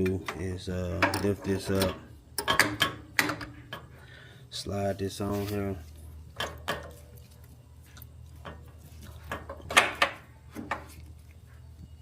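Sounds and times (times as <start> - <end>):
metal clicks and knocks: 0.0 - 3.9.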